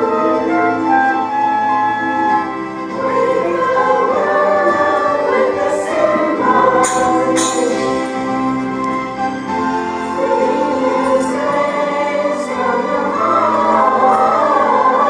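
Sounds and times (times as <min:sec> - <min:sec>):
choir singing: 0:00.0 - 0:15.0
instrumental accompaniment: 0:00.0 - 0:15.0
sharp high hits: 0:05.7 - 0:08.8.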